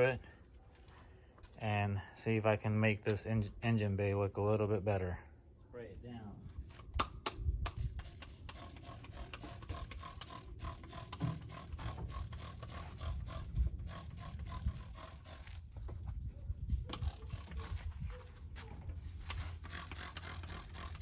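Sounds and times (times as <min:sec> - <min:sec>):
trigger spray bottle spritzing: 0:07.7 - 0:15.4.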